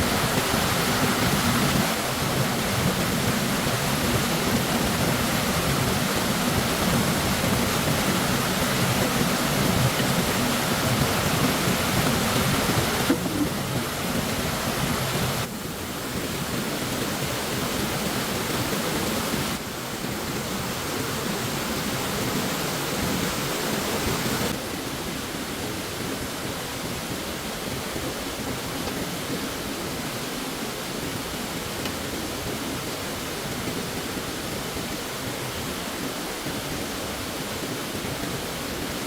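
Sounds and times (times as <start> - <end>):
stream water rushing: 0.0 - 39.0.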